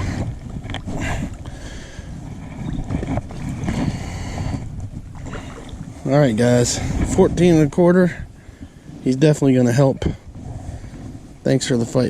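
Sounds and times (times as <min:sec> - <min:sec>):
water and kayak hull noise: 0:00.0 - 0:12.0
wind rumbling on microphone: 0:00.0 - 0:12.0.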